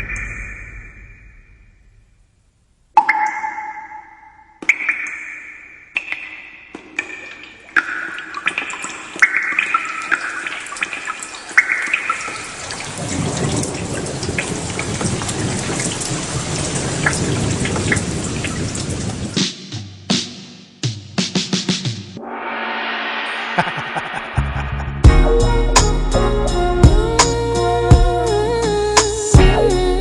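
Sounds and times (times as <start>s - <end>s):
water dripping: 2.9s - 19.4s
heavy rain falling: 12.2s - 19.4s.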